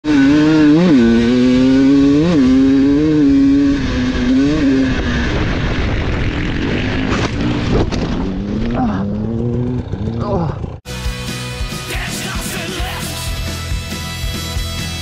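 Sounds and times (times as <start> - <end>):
motorcycle engine revving: 0.0 - 10.9.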